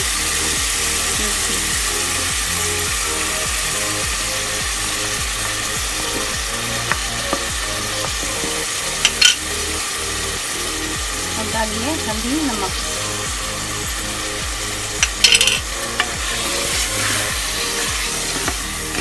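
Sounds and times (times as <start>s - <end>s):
background music: 0.0s - 19.0s
meat sizzling in a pot: 0.0s - 19.0s.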